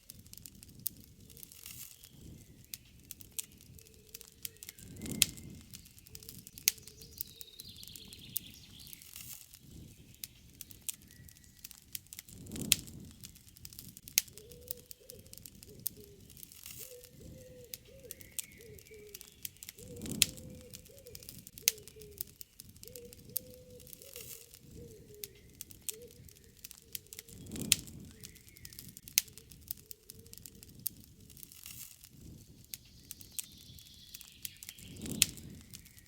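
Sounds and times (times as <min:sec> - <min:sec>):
campfire crackling and popping: 0:00.0 - 0:36.0
birds calling faintly: 0:00.1 - 0:36.0.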